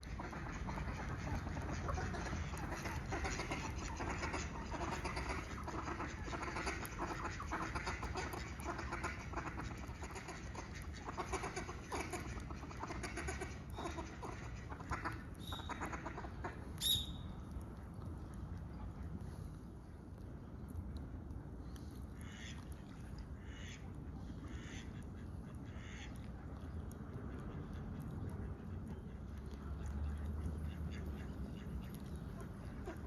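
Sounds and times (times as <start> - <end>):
birds calling rapidly: 14.8 - 17.2.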